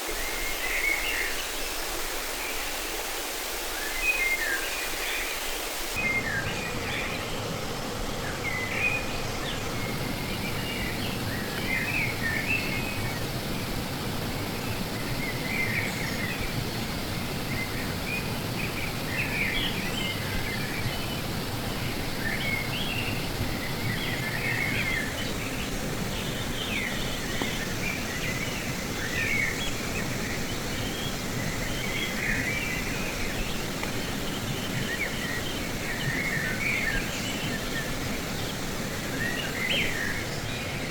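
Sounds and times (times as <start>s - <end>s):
fast-flowing river rushing: 0.0s - 40.9s
small birds chirping: 14.6s - 40.9s.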